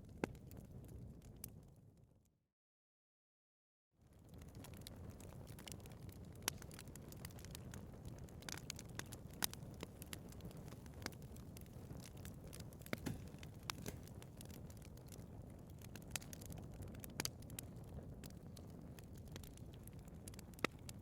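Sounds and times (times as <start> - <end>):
wood fire burning: 0.0 - 1.8, 4.0 - 21.0
fire crackles and pops: 0.0 - 2.0, 4.0 - 21.0.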